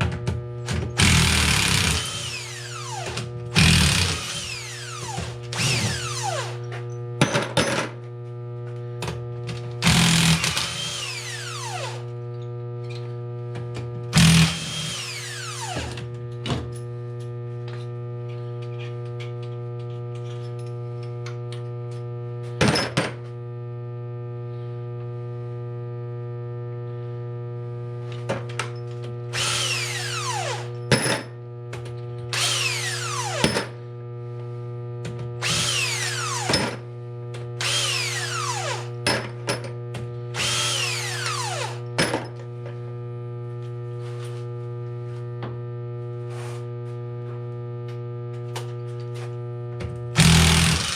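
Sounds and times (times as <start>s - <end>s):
power drill whining: 1.0s - 6.7s, 9.8s - 12.1s, 14.2s - 16.0s, 29.3s - 30.8s, 32.3s - 33.6s, 35.4s - 36.6s, 37.6s - 38.9s, 40.4s - 41.9s, 50.2s - 50.9s.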